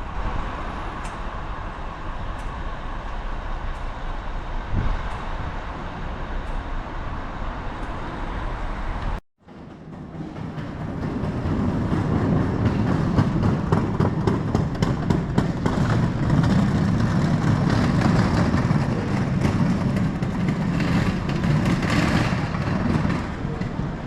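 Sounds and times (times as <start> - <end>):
wind on microphone: 4.2 - 6.3
bike tyres rumbling: 9.1 - 24.0.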